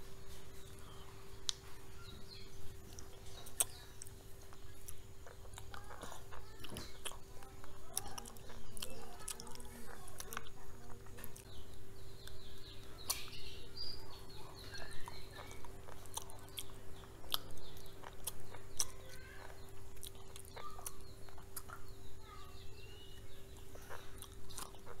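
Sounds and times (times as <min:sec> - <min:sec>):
bird chirps: 0:00.0 - 0:10.4, 0:11.4 - 0:25.0
chewing with mouth clicks: 0:02.8 - 0:22.0, 0:23.5 - 0:25.0.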